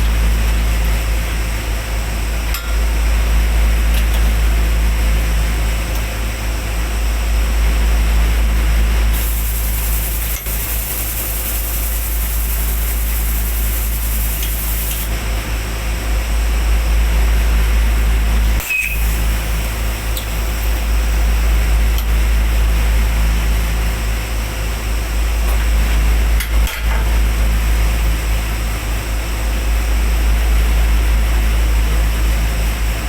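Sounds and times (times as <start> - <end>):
low machine hum: 0.0 - 33.0
gas hissing: 9.1 - 15.2, 18.7 - 21.5.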